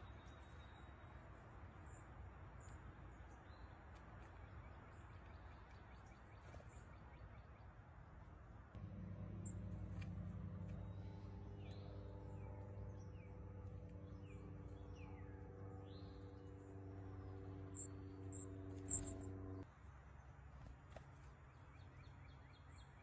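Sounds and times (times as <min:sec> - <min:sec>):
low mechanical hum: 0:07.9 - 0:23.0
downward-sweeping bird calls: 0:14.1 - 0:19.6
high bird notes: 0:17.6 - 0:19.6.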